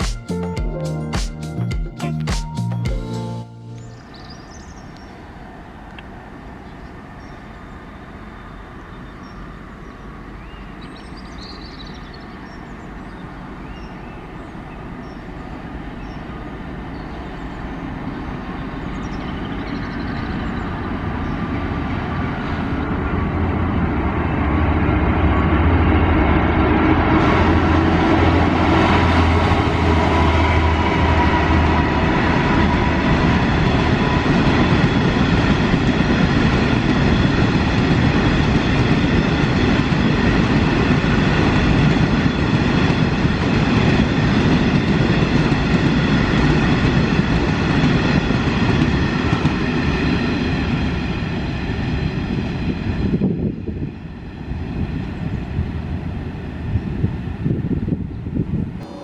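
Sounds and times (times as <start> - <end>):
train whine: 15.7 - 57.8, 58.8 - 59.0
train wheels rumbling on rail: 21.7 - 59.0.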